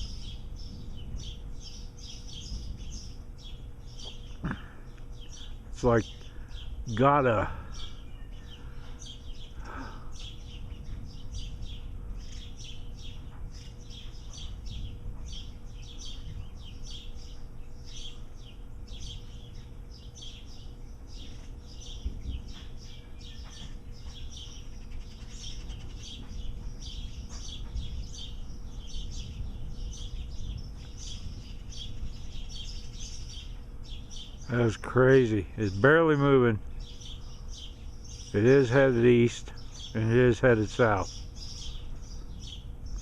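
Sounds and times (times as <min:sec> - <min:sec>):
wind rumble on microphone: 0:00.0 - 0:04.6, 0:07.7 - 0:19.2, 0:21.9 - 0:24.4, 0:25.0 - 0:34.3, 0:41.1 - 0:43.0
birds chirping: 0:00.0 - 0:43.0
faint steady hum: 0:00.0 - 0:43.0.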